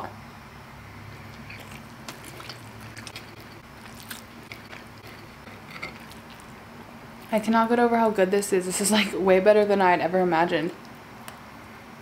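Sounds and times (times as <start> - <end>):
person chewing food: 1.2 - 6.7.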